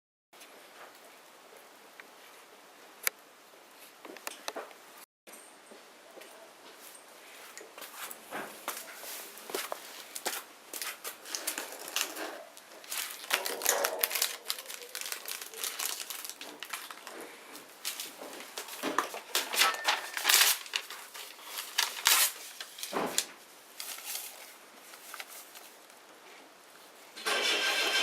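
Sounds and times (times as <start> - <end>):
bonfire crackling and popping: 11.3 - 17.2.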